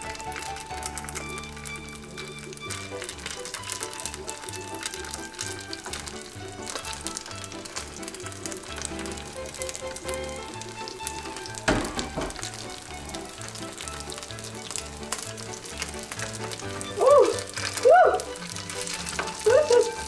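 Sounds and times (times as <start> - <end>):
spring rolls sizzling in oil: 0.0 - 20.0
loud knock: 11.7 - 12.4.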